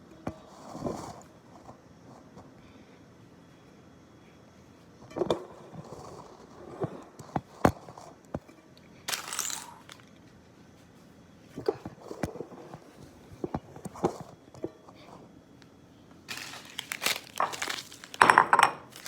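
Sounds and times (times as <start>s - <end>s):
papery rustle: 16.3s - 18.2s.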